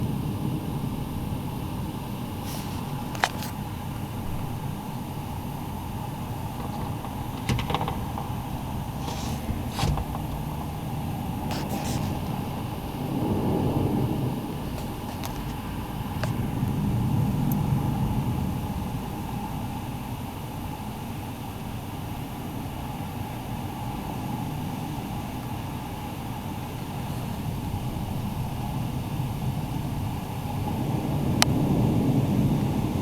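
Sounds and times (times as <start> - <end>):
wind gusting: 2.2 - 20.2.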